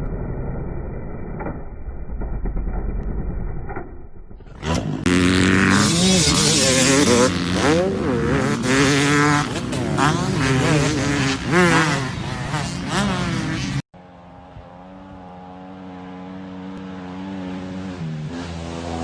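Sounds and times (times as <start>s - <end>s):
dirt bike engines revving: 4.5s - 19.0s.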